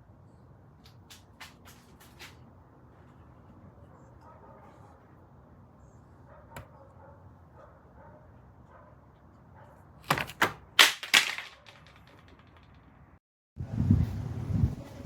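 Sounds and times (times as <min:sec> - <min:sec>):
sharp rustling clatters: 0:00.8 - 0:02.5, 0:10.8 - 0:13.0.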